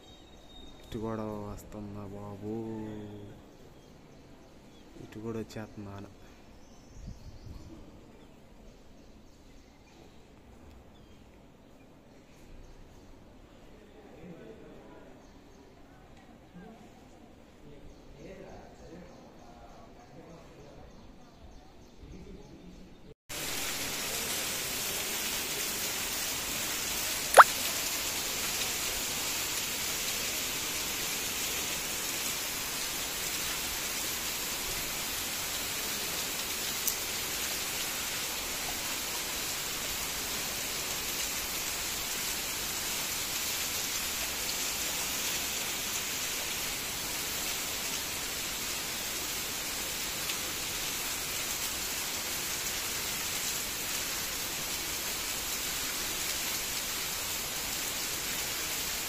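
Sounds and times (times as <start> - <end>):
torrential rain: 23.3 - 59.0.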